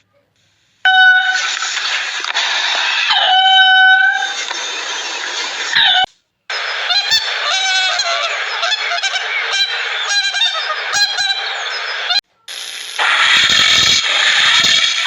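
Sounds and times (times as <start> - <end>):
flock of birds calling: 1.0 - 12.2.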